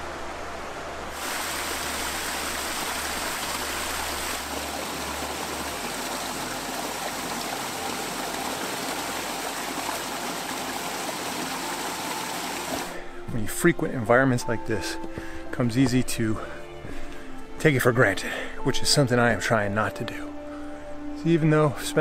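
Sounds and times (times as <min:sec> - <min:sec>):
stream water rushing over rocks: 0:01.0 - 0:13.0.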